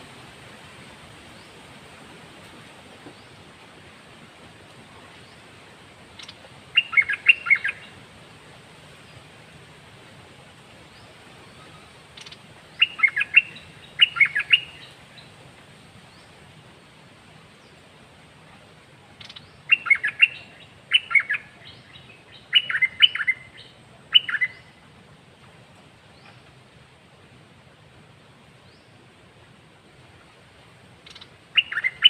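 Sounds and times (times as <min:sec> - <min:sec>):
songbird singing: 0:00.0 - 0:01.9, 0:04.9 - 0:08.1, 0:10.9 - 0:27.0, 0:28.4 - 0:32.0.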